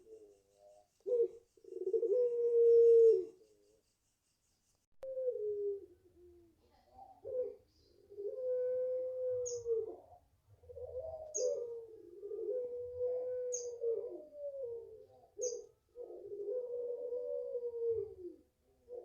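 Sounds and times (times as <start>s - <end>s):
dove cooing: 0.0s - 3.6s, 5.0s - 19.0s
high bird chirps: 15.4s - 15.7s.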